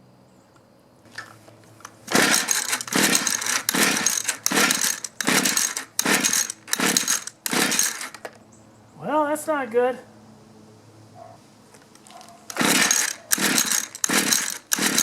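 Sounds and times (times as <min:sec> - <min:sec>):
recoil starter pulls cranking engine: 0:01.2 - 0:08.4, 0:12.5 - 0:15.0.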